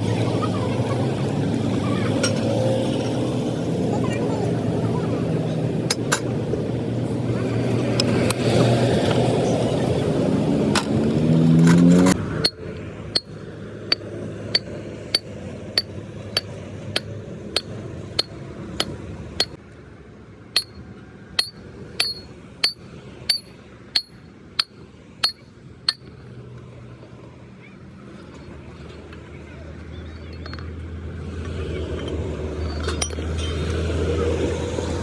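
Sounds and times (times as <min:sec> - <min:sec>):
vehicle engine revving: 0:08.4 - 0:12.3
hammer blows on steel: 0:21.4 - 0:26.0.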